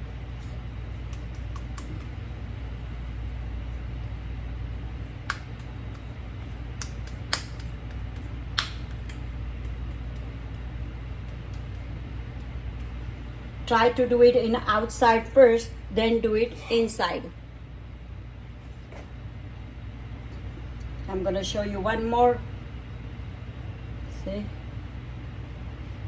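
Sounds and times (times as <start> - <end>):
hands shaping potato patties: 0.0 - 13.6
low hum: 0.0 - 26.0.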